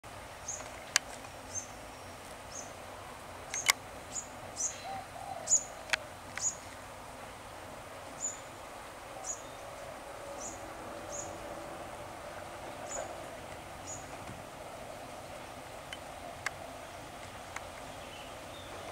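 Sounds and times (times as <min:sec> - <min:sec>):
faint outdoor background: 0:00.0 - 0:18.9
sharp clicks: 0:03.5 - 0:03.8
small bird chirping: 0:03.5 - 0:06.6, 0:08.2 - 0:08.5, 0:13.8 - 0:14.2.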